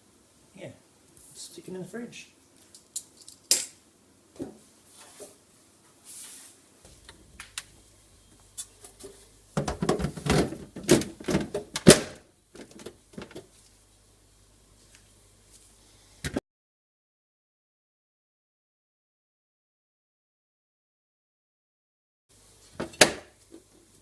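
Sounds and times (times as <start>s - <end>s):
low steady hum: 6.7s - 16.3s
plastic fridge shelf clattering: 9.6s - 13.5s, 22.8s - 23.3s.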